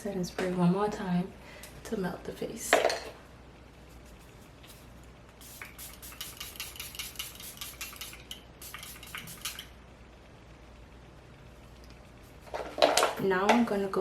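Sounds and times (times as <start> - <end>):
spray bottle hissing sprays: 4.0 - 9.7.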